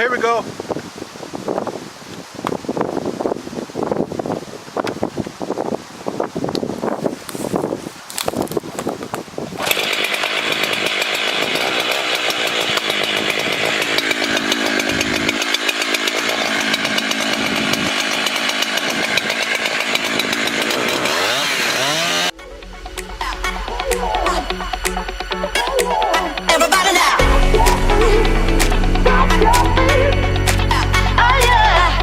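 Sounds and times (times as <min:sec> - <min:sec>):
chainsaw cutting wood: 0:08.1 - 0:22.3, 0:24.9 - 0:32.0
electronic dance music: 0:22.4 - 0:32.0.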